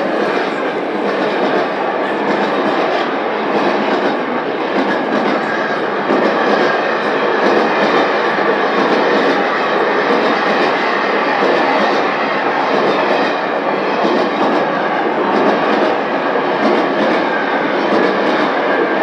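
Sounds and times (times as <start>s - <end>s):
recorded train noise: 0.0s - 19.0s.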